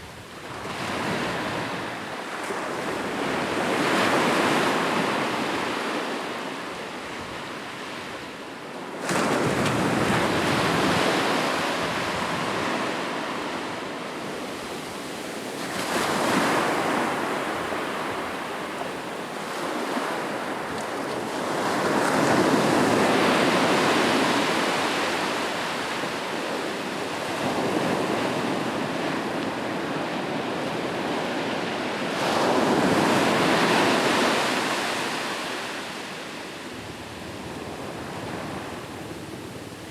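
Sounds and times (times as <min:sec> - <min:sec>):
ocean waves breaking: 0:09.3 - 0:29.2.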